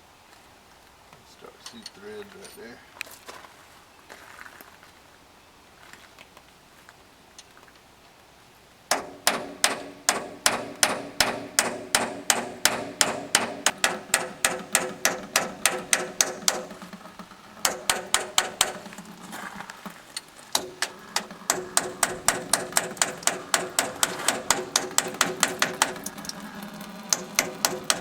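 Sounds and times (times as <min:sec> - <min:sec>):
hammer striking steel: 0:08.9 - 0:19.7, 0:20.4 - 0:28.0.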